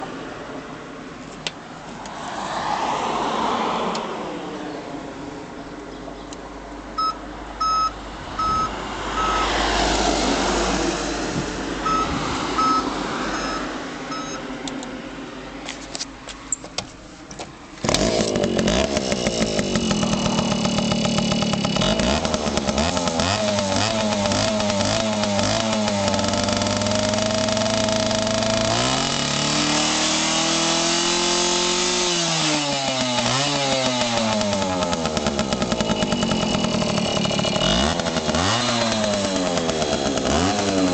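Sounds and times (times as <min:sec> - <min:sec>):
engine revving: 0:17.8 - 0:40.9
two-stroke engine running: 0:17.8 - 0:40.9.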